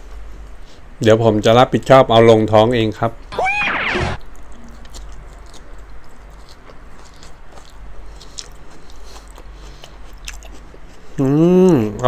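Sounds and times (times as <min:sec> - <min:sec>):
person chewing: 0:04.2 - 0:11.2.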